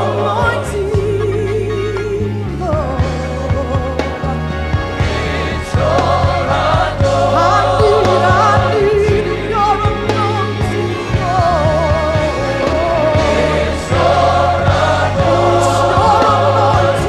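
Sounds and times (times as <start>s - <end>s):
band with bass and drums: 0.0s - 17.0s
voices singing gospel: 0.0s - 17.0s.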